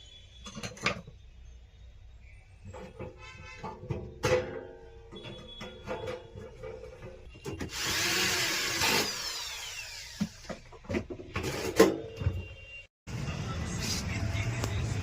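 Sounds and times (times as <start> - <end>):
power tool motor winding down: 7.7 - 10.4.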